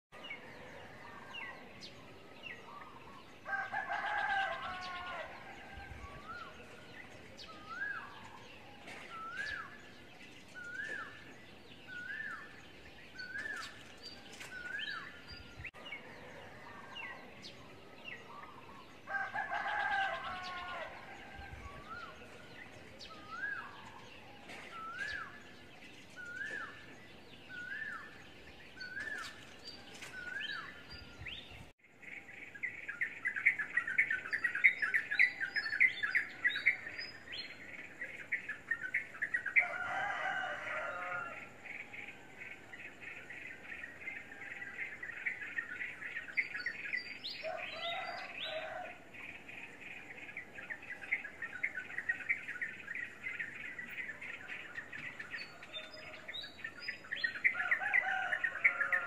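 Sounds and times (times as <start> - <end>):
bird chirping: 0.1 - 59.0
harsh bird calls: 0.2 - 31.7, 43.8 - 59.0.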